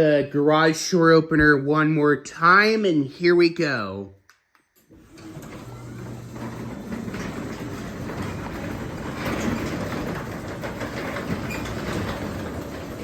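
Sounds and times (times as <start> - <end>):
garage door opener motor hum: 4.9 - 13.0
garage door rattling on tracks: 5.0 - 13.0.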